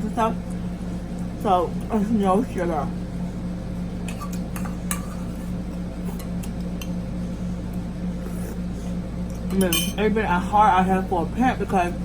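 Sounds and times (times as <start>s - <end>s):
utensils clinking on dish: 9.5s - 10.0s.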